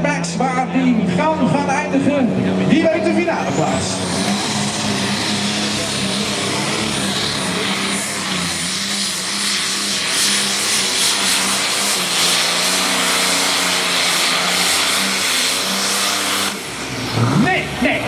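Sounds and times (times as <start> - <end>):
tractor engine at full throttle: 0.0 - 18.0
loud rushing hiss: 3.6 - 17.2.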